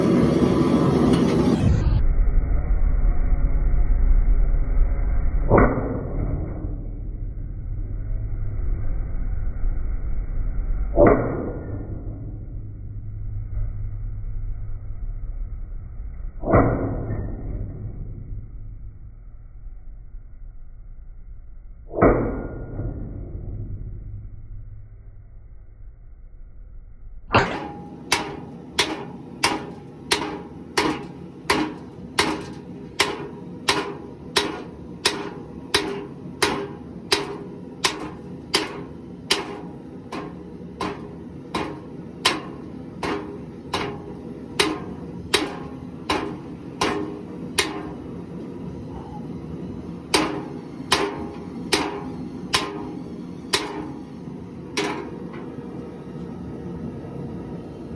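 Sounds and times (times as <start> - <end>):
hammer striking anvil: 27.4 - 48.2, 50.1 - 55.6.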